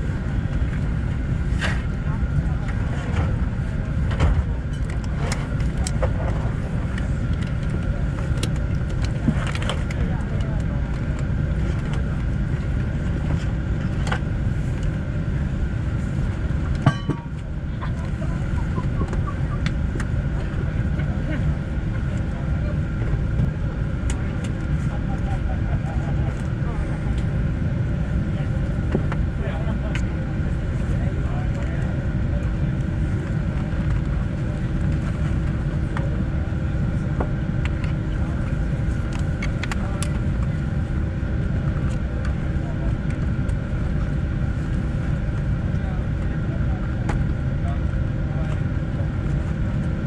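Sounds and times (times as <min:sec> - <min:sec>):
airliner cabin rumble: 0:00.0 - 0:50.0.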